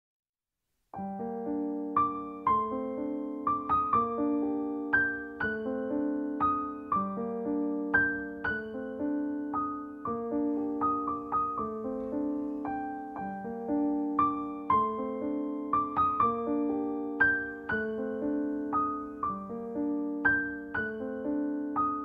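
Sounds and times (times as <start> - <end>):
solo piano music: 0.9 - 22.0.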